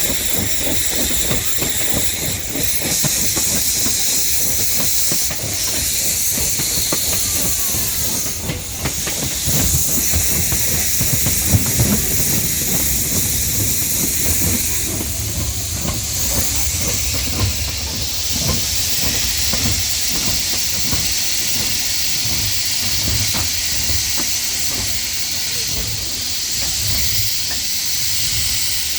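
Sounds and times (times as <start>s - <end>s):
knocks and clanks: 0.0s - 28.6s
steam locomotive hissing: 0.0s - 28.9s
low rumble: 11.2s - 20.3s.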